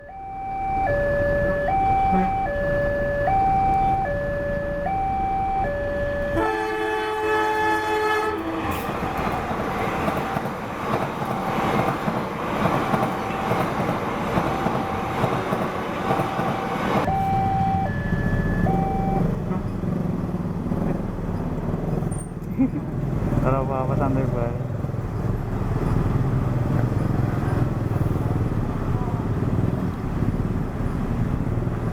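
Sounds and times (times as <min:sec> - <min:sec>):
level crossing two-tone alarm: 0:00.0 - 0:06.7, 0:16.4 - 0:19.4
train passing rumble: 0:00.0 - 0:31.9
train horn: 0:02.0 - 0:02.6, 0:06.3 - 0:09.2.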